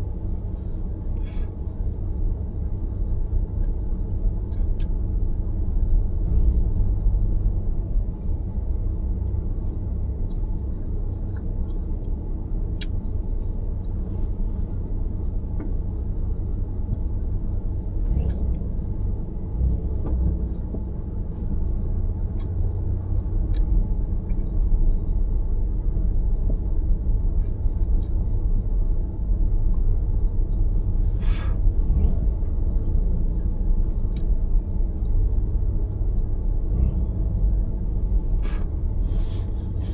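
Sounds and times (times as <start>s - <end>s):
car road and engine rumble: 0.0s - 39.9s
brief hiss: 31.1s - 31.6s.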